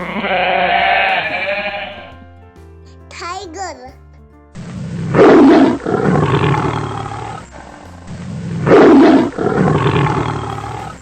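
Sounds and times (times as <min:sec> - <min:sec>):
tiger roaring: 0:00.0 - 0:02.2.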